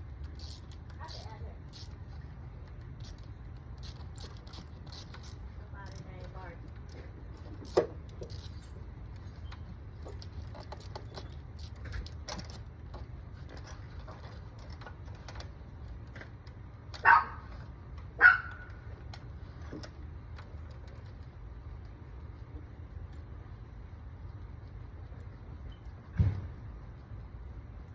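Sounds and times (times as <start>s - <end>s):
dog barking: 17.0s - 17.4s, 18.2s - 18.7s.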